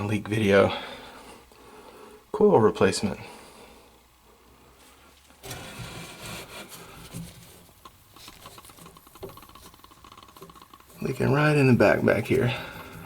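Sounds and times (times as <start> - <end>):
rubbing and scraping on coil: 5.3 - 13.0
leak detector ticking rapidly: 7.8 - 13.0.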